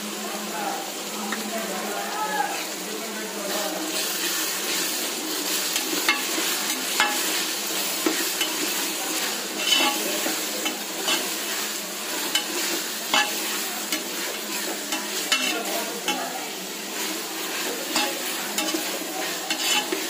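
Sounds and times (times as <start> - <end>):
vegetables sizzling in hot oil: 0.0 - 20.0
metal spoon scraping and clinking pot: 5.7 - 8.8, 9.6 - 11.4, 12.2 - 16.3, 17.9 - 20.0.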